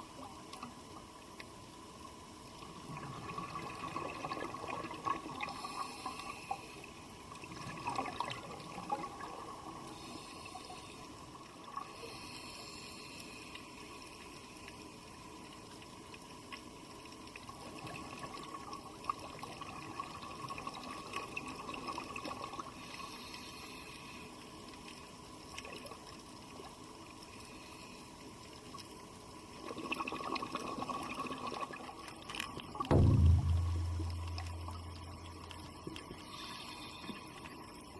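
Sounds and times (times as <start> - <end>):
underwater water noise: 32.9 - 35.8.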